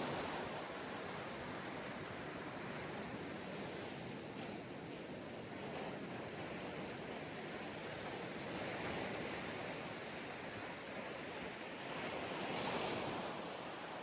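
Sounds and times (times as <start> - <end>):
sea waves breaking on beach: 0.0 - 3.2.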